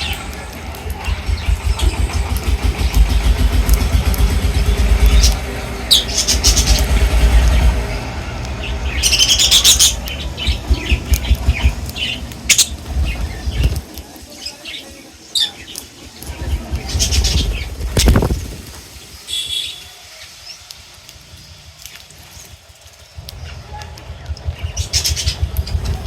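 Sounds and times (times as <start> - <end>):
low rumble: 0.0 - 14.3, 23.2 - 26.0
birds flapping wings: 0.0 - 26.0.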